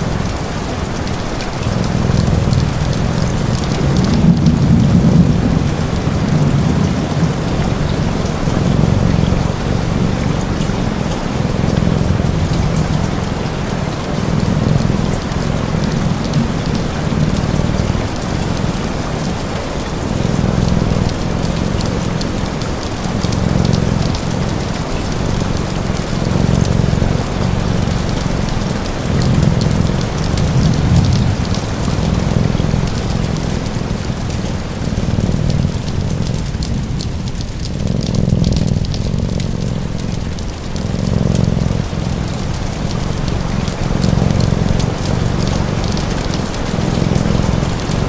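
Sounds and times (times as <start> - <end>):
cat purring: 0.0 - 48.0
steady rain: 0.0 - 48.0
wood fire crackling: 0.0 - 48.0.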